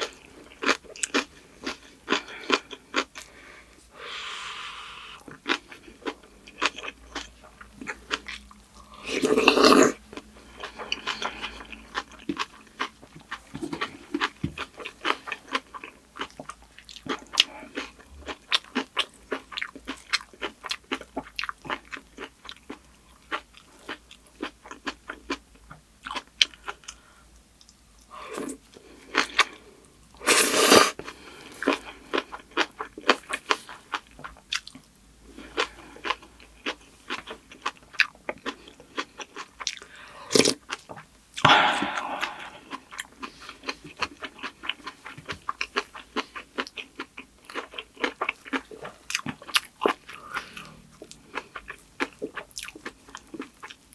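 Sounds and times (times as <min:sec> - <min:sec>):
chewing and crunching food: 0:00.0 - 0:03.8, 0:05.2 - 0:53.9.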